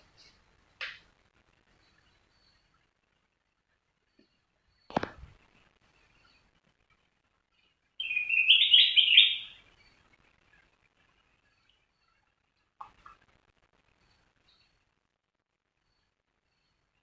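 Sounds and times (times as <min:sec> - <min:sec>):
bird singing whistled notes: 0:08.0 - 0:09.9.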